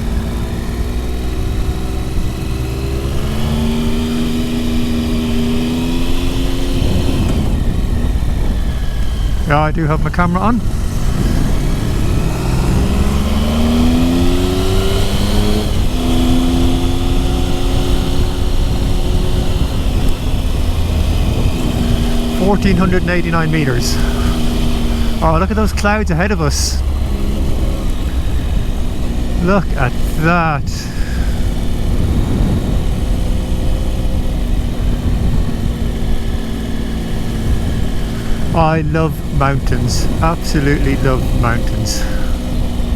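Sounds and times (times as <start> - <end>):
motorcycle engine pulling uphill: 0.0 - 42.9
wind rumble on microphone: 6.4 - 9.8, 10.5 - 22.8, 30.9 - 38.6.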